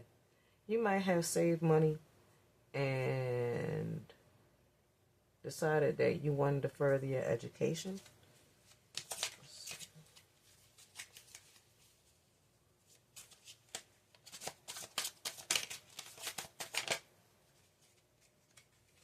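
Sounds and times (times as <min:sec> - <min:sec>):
cards being shuffled: 0:07.9 - 0:12.1, 0:12.8 - 0:19.0.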